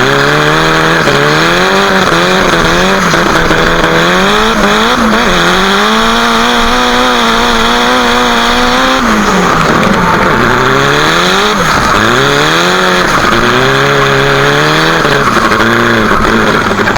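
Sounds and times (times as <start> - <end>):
car engine revving: 0.0 - 16.9
tyre squeal: 0.0 - 16.9.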